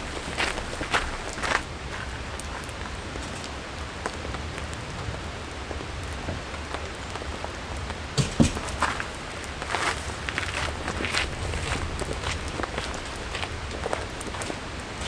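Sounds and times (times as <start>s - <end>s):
rain falling: 0.0s - 15.0s
drops tapping on surfaces: 8.2s - 9.1s
knocks or footsteps: 8.2s - 14.6s.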